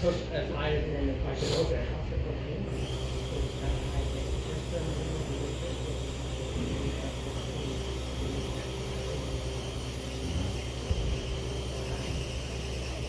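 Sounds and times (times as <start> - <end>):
constant low hum: 0.0 - 13.0
electric toy truck whirring: 2.7 - 13.0.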